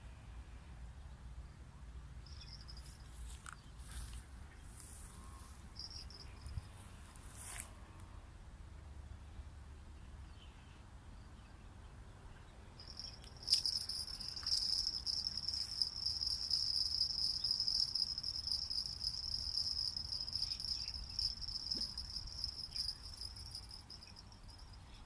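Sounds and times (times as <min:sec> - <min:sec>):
insect trilling: 0:12.8 - 0:24.7.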